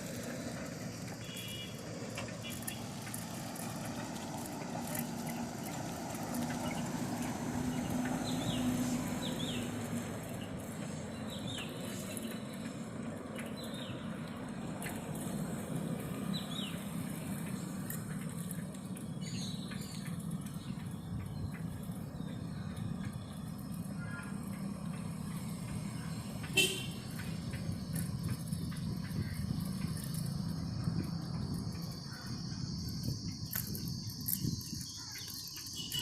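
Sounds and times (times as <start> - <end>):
street noise: 0.0 - 36.0
wind: 0.0 - 36.0
bird chirping: 25.4 - 36.0.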